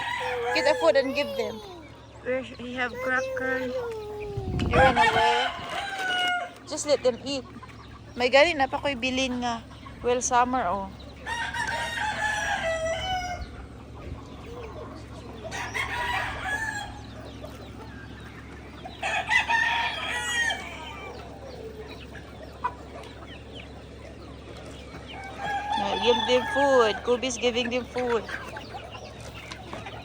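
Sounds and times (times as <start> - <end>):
rooster crowing: 0.0 - 1.5, 4.7 - 6.6, 11.3 - 13.5, 15.5 - 17.1, 19.0 - 21.2, 25.2 - 27.1
chickens clucking: 0.0 - 30.0.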